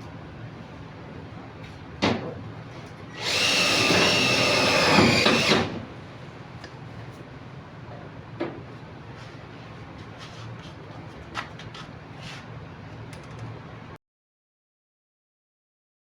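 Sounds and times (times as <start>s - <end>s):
power drill running: 3.1s - 5.9s.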